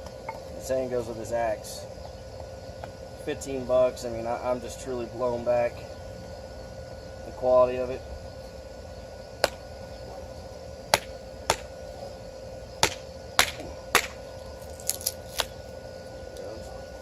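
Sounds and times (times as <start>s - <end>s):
axe striking wood: 9.4s - 9.6s, 10.9s - 11.7s, 12.8s - 14.2s.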